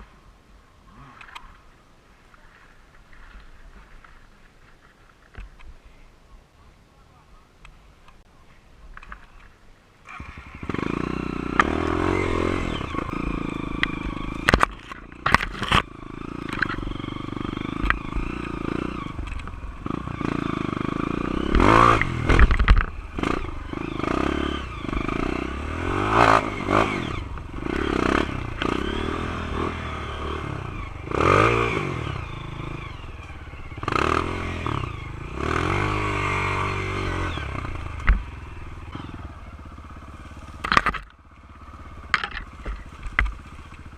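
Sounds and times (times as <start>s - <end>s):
dirt bike engine revving: 10.0s - 43.9s
sharp knocks and clatter: 40.6s - 41.2s, 42.1s - 43.8s.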